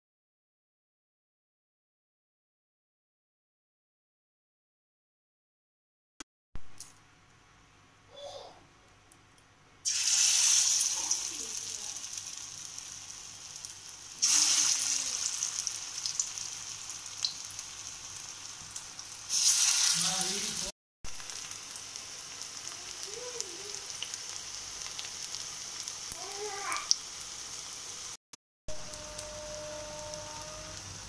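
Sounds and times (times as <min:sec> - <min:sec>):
cutlets sizzling in oil: 0:09.8 - 0:31.0.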